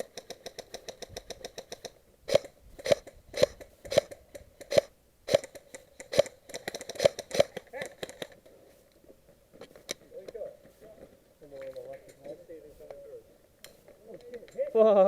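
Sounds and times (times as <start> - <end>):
airsoft gun full-auto burst: 0.0 - 8.3
airsoft gun single shots: 1.6 - 8.3.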